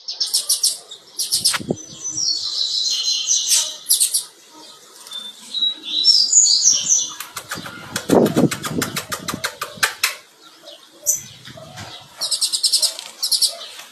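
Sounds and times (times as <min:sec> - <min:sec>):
bird chirping and chattering: 0:00.1 - 0:04.4, 0:05.1 - 0:13.9
wing flutter: 0:07.1 - 0:10.2.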